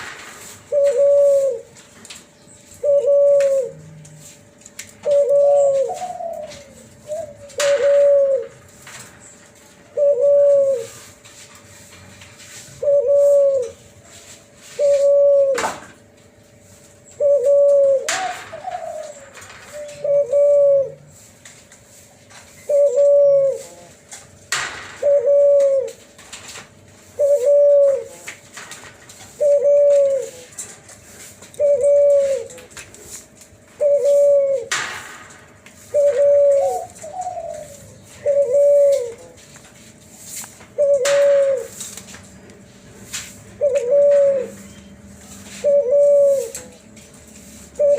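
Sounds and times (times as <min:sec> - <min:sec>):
dove cooing: 0:00.6 - 0:01.8, 0:02.7 - 0:04.3, 0:04.9 - 0:08.8, 0:09.9 - 0:11.2, 0:12.7 - 0:13.9, 0:14.7 - 0:16.0, 0:17.0 - 0:21.3, 0:22.6 - 0:24.1, 0:24.8 - 0:26.1, 0:27.0 - 0:28.5, 0:29.2 - 0:32.8, 0:33.6 - 0:34.9, 0:35.8 - 0:39.5, 0:40.6 - 0:41.9, 0:43.5 - 0:47.0, 0:47.6 - 0:47.9.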